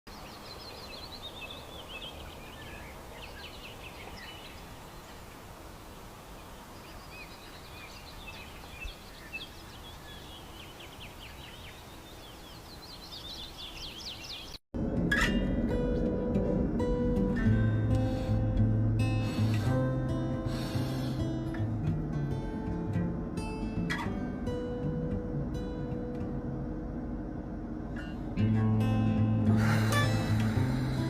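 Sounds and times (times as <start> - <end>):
birds chirping: 0.1 - 14.6
outdoor background hiss: 0.1 - 31.0.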